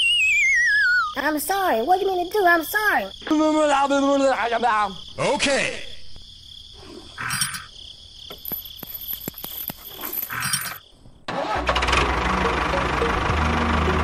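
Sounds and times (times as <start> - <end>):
high cricket-like chirring: 0.0 - 11.3
small chain clicking: 8.3 - 10.8.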